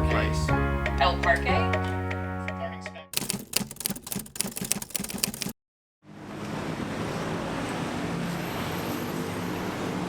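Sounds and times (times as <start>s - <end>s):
fast sharp clicks: 3.2s - 5.6s
city traffic noise: 6.1s - 10.0s.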